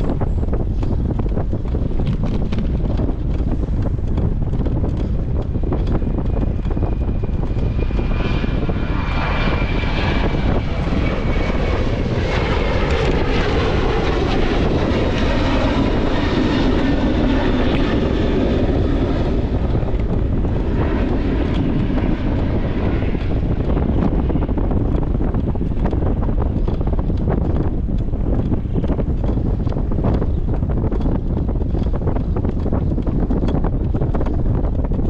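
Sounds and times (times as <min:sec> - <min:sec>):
airplane engines roaring: 0:00.0 - 0:35.0
wind buffeting microphone: 0:00.0 - 0:35.0.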